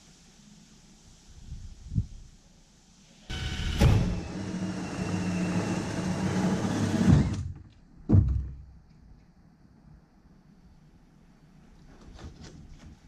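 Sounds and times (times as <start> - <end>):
small motor tool humming: 3.3 - 7.4.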